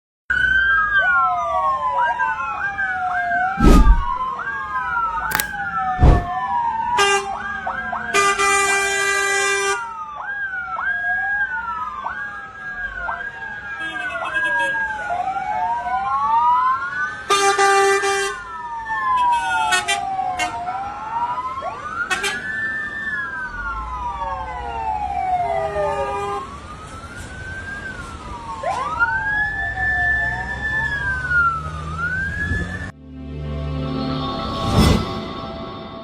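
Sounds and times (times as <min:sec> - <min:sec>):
fire engine sirens wailing: 0:18.5 - 0:32.9.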